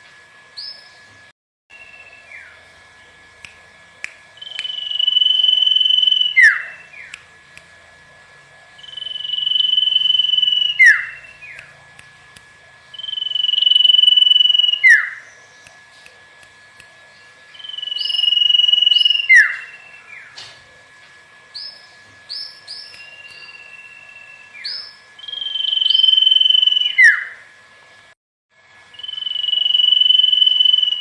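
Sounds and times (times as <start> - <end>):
bird whistling song: 0.6 - 1.0, 1.7 - 2.6, 4.4 - 7.2, 8.8 - 11.7, 12.9 - 15.7, 17.5 - 20.4, 21.6 - 27.4, 28.9 - 31.0.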